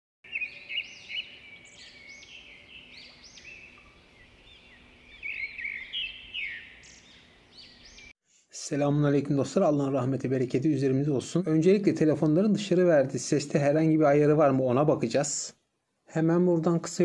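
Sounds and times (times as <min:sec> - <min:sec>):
small birds chirping: 0:00.2 - 0:08.2.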